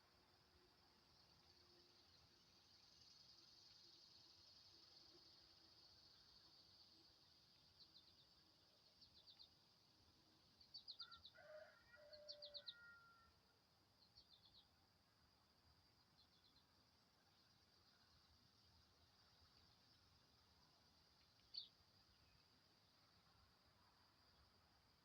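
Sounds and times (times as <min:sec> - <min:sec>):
high insect drone: 0:00.0 - 0:25.0
faint low animal calls: 0:11.0 - 0:13.4.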